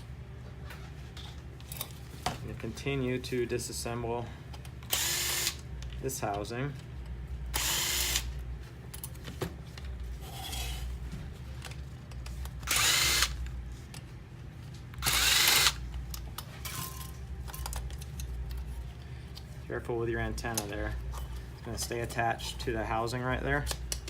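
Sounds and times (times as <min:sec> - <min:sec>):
power screwdriver backing out screws: 0:12.6 - 0:13.4.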